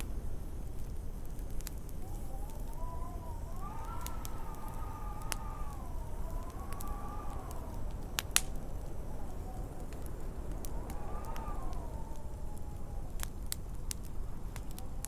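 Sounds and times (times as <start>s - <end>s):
howling wind whistle: 0.0s - 15.0s
low wind rumble: 0.0s - 15.0s
wood fire crackling and popping: 0.0s - 15.0s.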